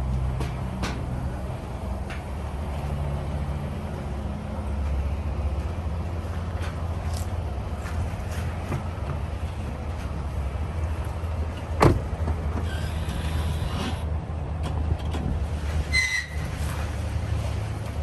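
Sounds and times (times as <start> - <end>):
brief squeak: 12.6 - 14.0, 15.9 - 16.5.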